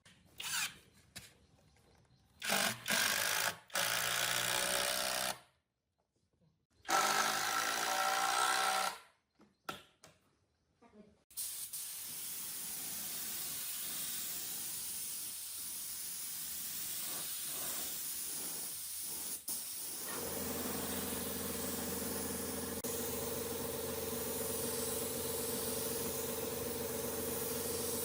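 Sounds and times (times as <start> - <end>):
pressurized air hiss: 11.3 - 28.0
motor humming: 20.0 - 28.0.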